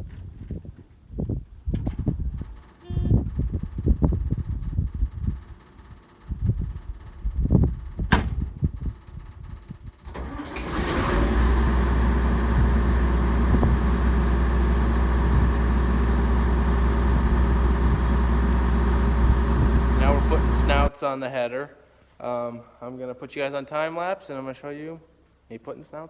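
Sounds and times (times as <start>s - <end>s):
diesel engine starting and running: 1.8s - 20.9s.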